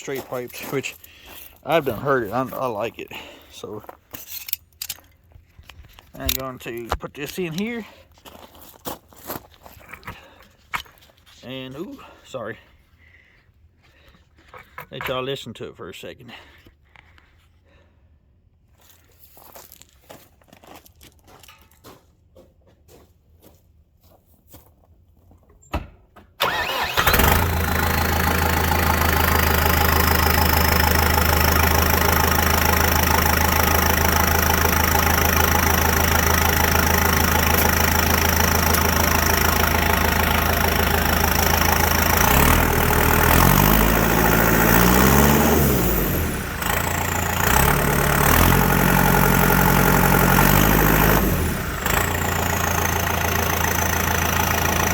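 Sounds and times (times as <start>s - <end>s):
tractor engine idling and revving: 0.0s - 5.0s, 26.4s - 54.9s.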